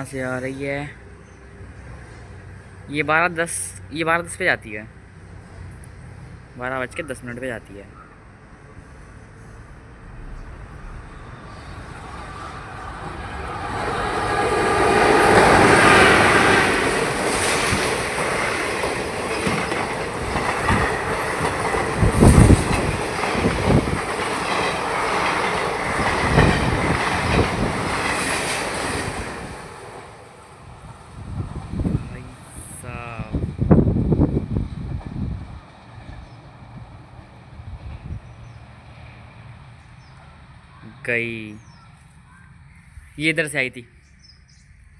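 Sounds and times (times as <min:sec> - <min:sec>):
passenger train passing: 0:00.0 - 0:43.8
train wheels thumping and clattering: 0:13.6 - 0:30.2.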